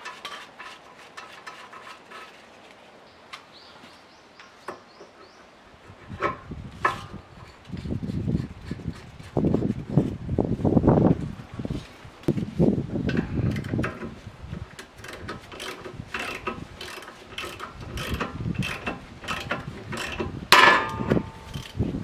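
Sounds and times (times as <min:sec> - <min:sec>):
tools clicking on metal parts: 0:13.1 - 0:21.8
loud metallic clank: 0:20.5 - 0:21.5.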